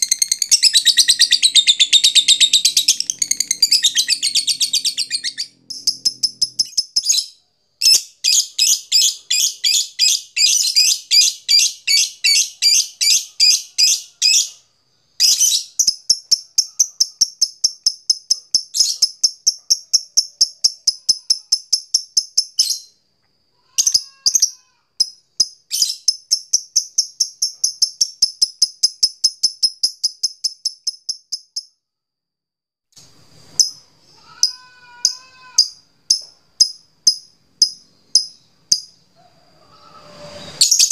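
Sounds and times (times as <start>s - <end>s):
bird shrill rapid chatter: 0.0s - 14.5s, 40.2s - 40.9s.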